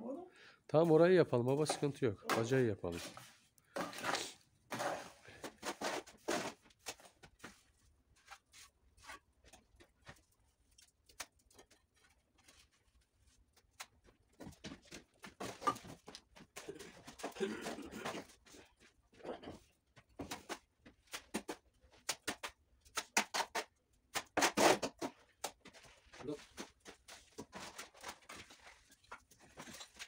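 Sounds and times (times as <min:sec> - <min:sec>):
trowel scraping mortar: 0:01.6 - 0:09.3, 0:22.2 - 0:25.9.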